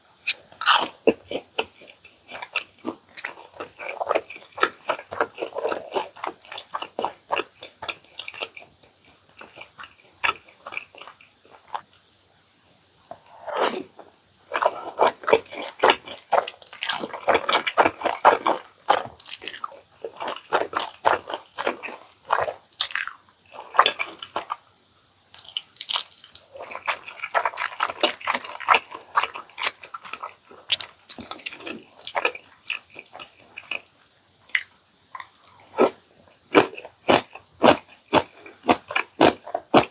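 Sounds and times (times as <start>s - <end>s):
chewing with wet mouth clicks: 0.2s - 12.0s, 25.3s - 33.8s.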